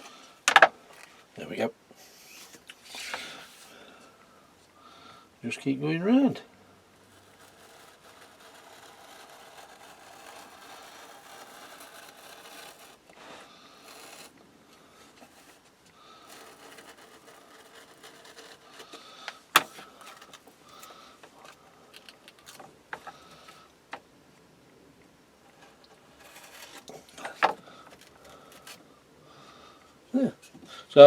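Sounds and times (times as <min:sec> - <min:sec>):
scalpel blade scraping wood: 0:07.1 - 0:14.4, 0:15.0 - 0:23.6, 0:25.5 - 0:28.8.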